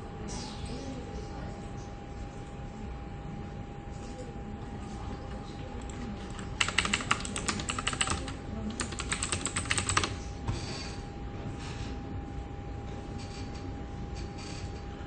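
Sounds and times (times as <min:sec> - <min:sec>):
keyboard typing: 0:05.8 - 0:10.2.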